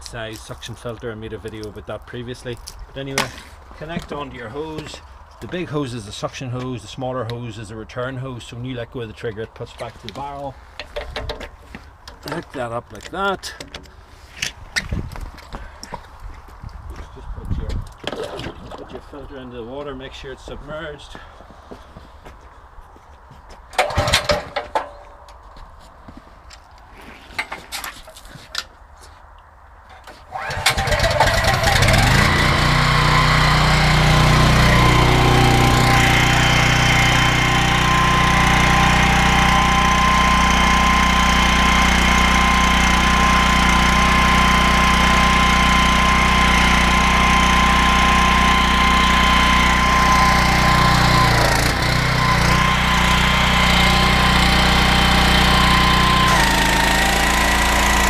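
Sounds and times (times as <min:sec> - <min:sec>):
pressure washer engine running: 0:30.4 - 0:58.0.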